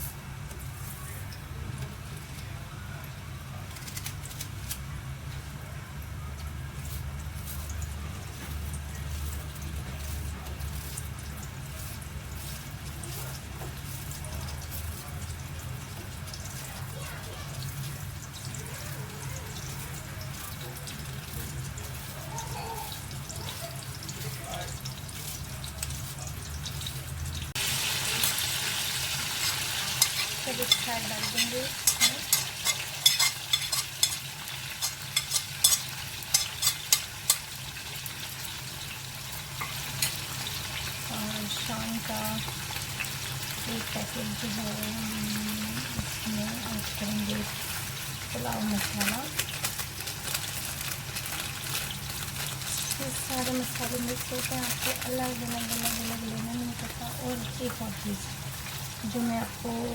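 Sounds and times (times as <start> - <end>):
food sizzling in hot oil: 0.0 - 59.9
spoon scraping a pot: 28.2 - 38.0, 39.5 - 40.9.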